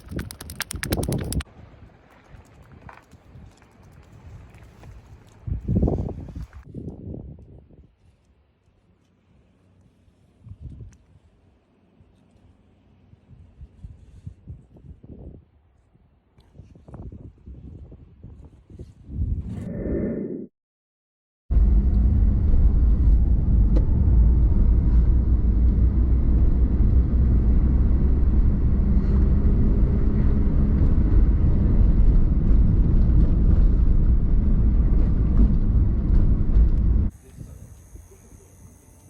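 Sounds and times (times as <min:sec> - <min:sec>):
vehicle engine running: 0:00.0 - 0:01.4, 0:21.6 - 0:38.6.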